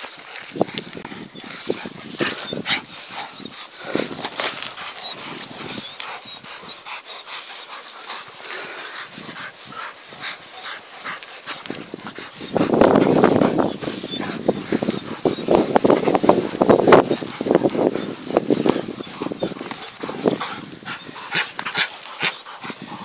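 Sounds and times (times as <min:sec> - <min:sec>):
dogs attacking: 0:00.0 - 0:23.0.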